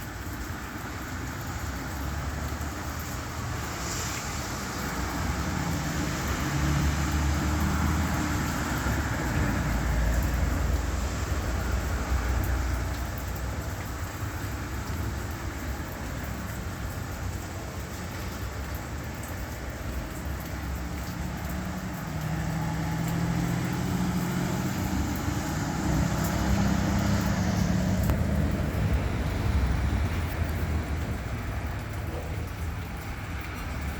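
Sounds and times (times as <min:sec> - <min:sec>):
vehicle engines: 0:00.0 - 0:33.9.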